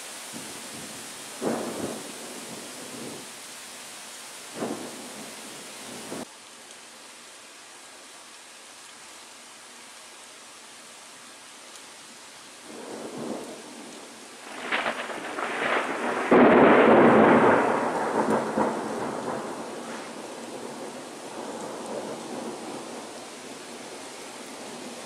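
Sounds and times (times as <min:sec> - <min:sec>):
steady rain hiss: 0:00.0 - 0:25.0
crackling thunderclap: 0:00.3 - 0:03.2, 0:04.6 - 0:05.3, 0:12.7 - 0:23.2.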